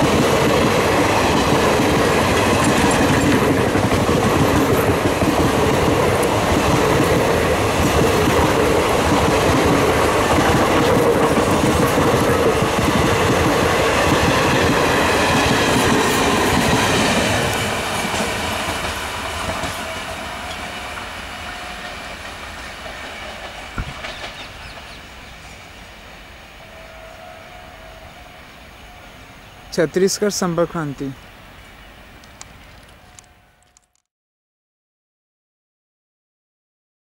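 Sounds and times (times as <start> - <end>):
train wheels clattering on rails: 0.0 - 25.1.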